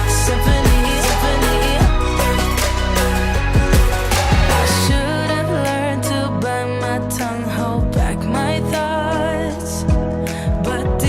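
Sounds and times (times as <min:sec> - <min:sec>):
pop music with singing: 0:00.0 - 0:11.0.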